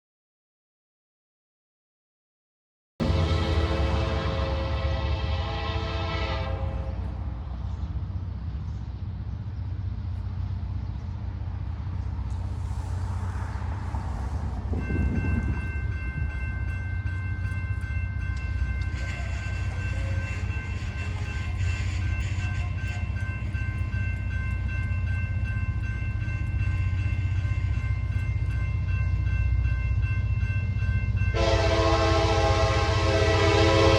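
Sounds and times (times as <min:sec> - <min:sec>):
train horn: 0:03.0 - 0:07.2, 0:18.8 - 0:23.2, 0:31.3 - 0:33.9
freight train engine rumble: 0:03.0 - 0:33.9.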